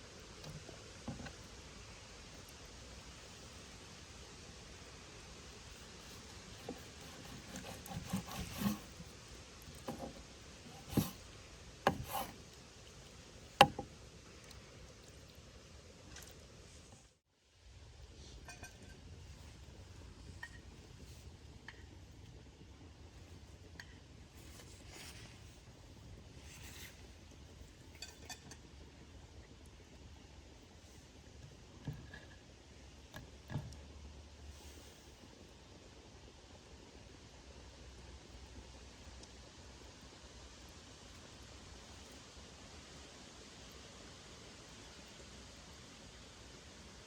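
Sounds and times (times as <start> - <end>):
low steady hiss: 0.0 - 47.0
soft rustles: 24.4 - 27.7.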